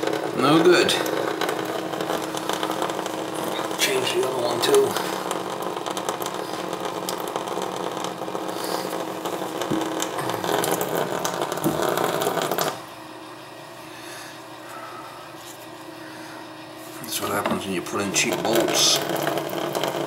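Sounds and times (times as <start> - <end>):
handheld power tool running: 0.0 - 12.8.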